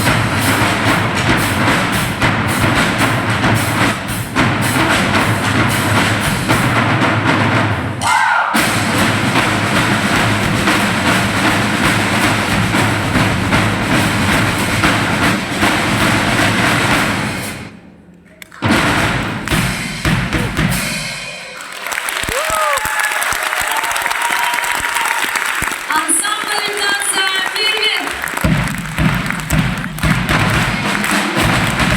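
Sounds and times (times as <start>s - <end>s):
drum ensemble playing fast rhythm: 0.0s - 17.9s, 18.5s - 31.9s
loud drum stroke ringing: 0.0s - 21.6s, 28.4s - 31.9s.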